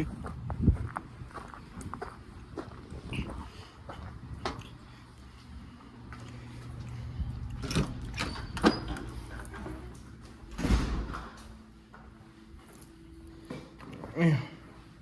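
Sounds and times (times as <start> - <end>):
door squeak: 7.6 - 9.7
door sliding: 7.6 - 11.5.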